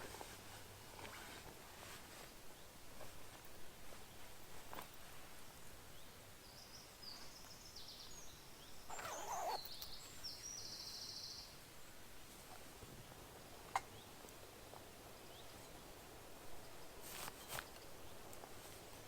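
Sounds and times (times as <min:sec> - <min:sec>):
songbird trilling: 0:08.9 - 0:11.4.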